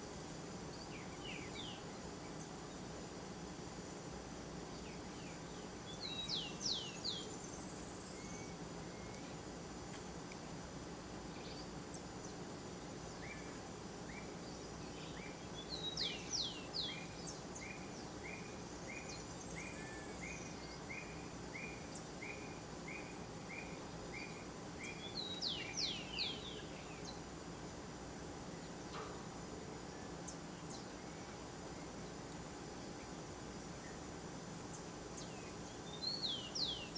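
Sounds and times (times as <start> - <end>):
low background hum: 0.0 - 36.9
bird chirping: 4.7 - 10.0, 11.3 - 27.3, 34.7 - 36.9.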